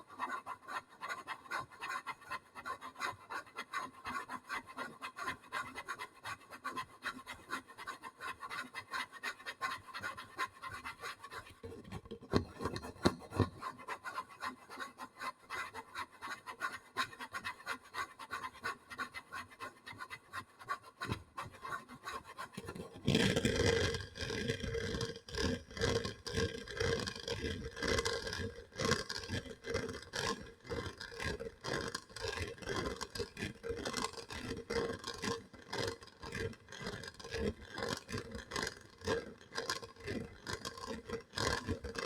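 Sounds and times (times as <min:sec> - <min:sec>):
scratching on a surface: 0:20.8 - 0:42.0.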